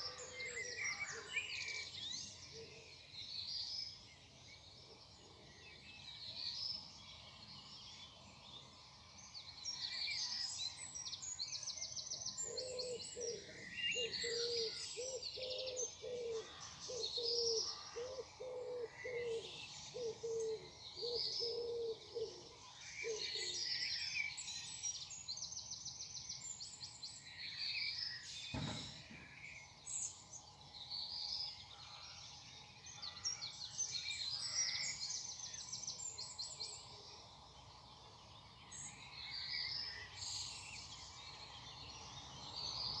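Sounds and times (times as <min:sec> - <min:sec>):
songbirds chirping and singing: 0:00.0 - 0:43.0
low cooing call: 0:12.4 - 0:23.5
sharp knock: 0:28.5 - 0:29.3.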